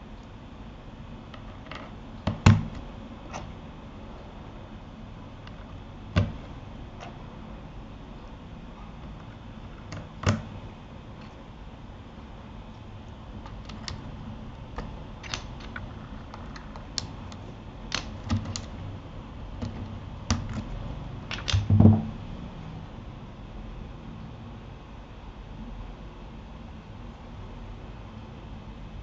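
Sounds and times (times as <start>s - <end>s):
heavier keyboard thump: 6.2s - 6.5s, 21.4s - 22.2s.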